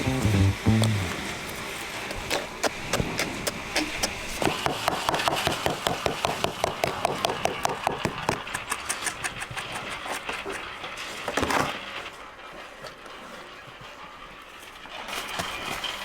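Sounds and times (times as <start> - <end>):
steady low hiss: 0.0 - 1.4.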